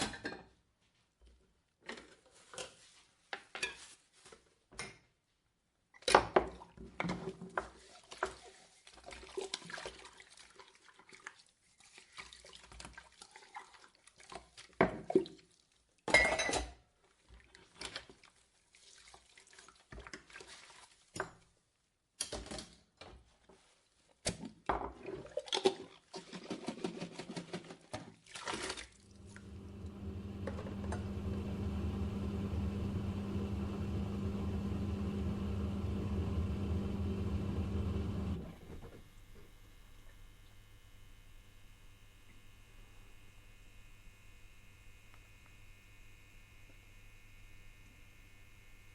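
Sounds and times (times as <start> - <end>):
dishwasher pump humming: 29.0 - 39.5.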